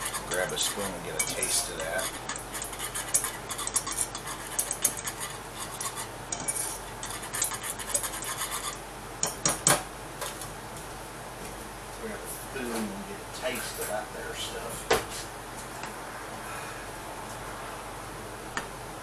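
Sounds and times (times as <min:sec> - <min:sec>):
whisk scraping saucepan: 0:00.0 - 0:08.8
whisk knocking on pan: 0:00.0 - 0:09.8.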